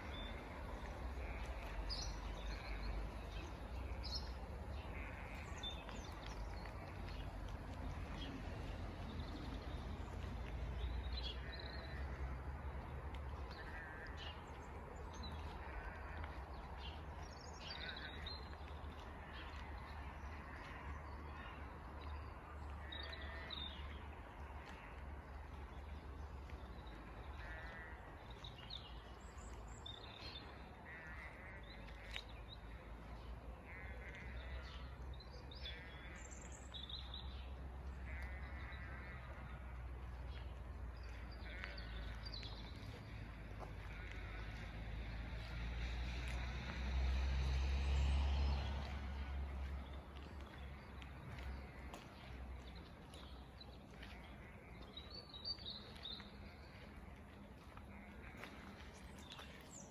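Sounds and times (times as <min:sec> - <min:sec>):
birds calling: 0:00.0 - 0:06.9, 0:27.4 - 0:28.0, 0:41.0 - 0:42.3, 0:43.8 - 0:44.6.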